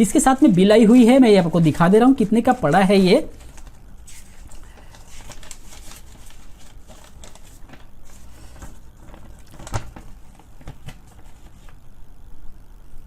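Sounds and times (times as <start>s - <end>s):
paper bill rustling: 0.0s - 11.8s.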